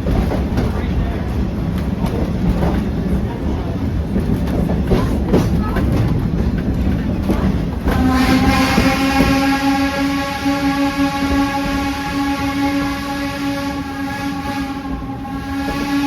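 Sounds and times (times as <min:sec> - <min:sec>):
train cars knocking and creaking: 0:00.0 - 0:16.0
train rumble and clatter: 0:00.0 - 0:16.0
steam whistle blast: 0:08.0 - 0:16.0.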